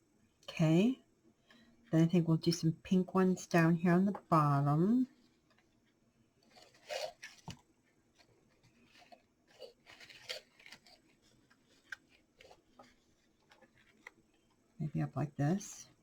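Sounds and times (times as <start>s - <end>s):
artificial flowers rustling: 5.0s - 14.6s.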